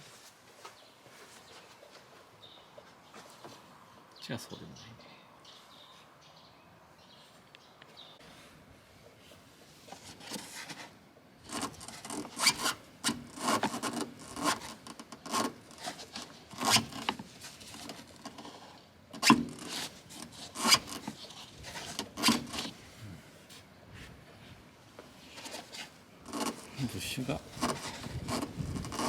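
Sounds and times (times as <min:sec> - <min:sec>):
scraping and rubbing on metal parts: 0:11.5 - 0:22.8, 0:25.2 - 0:29.0.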